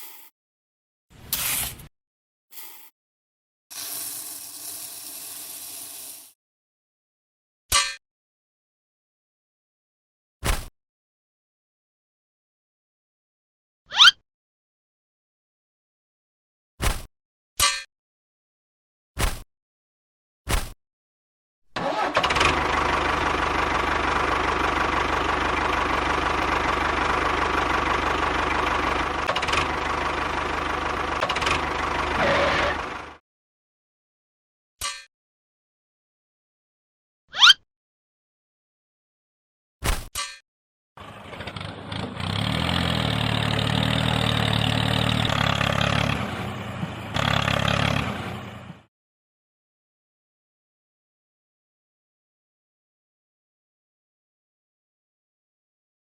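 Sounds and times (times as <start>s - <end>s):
small engine running with knocking pulse: 22.0s - 33.2s, 41.0s - 48.9s.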